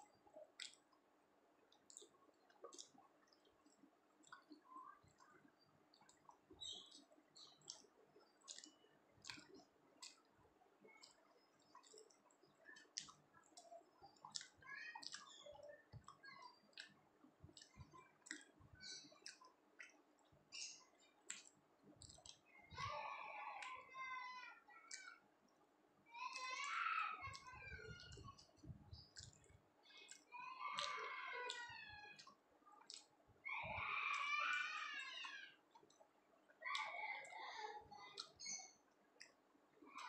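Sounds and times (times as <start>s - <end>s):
mouth clicks and smacks chewing: 0.0s - 40.0s
voice in the background: 22.7s - 25.2s, 36.6s - 38.7s.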